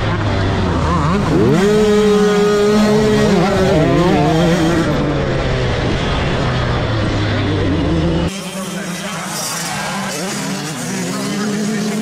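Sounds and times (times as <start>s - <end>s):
drone of motocross bikes: 0.0s - 12.0s
motorbike engine revving: 0.0s - 12.0s.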